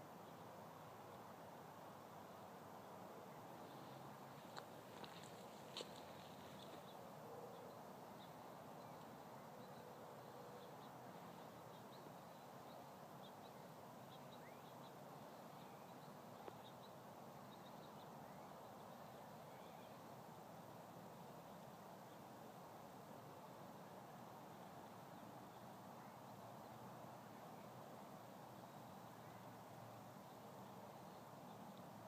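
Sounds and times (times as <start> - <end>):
faint steady hiss: 0.0 - 32.0.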